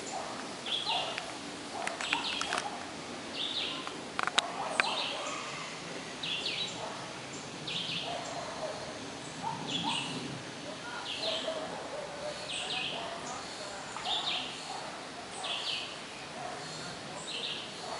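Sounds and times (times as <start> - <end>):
sharp clicks: 1.1 - 2.7
lower bird calls: 4.7 - 17.8.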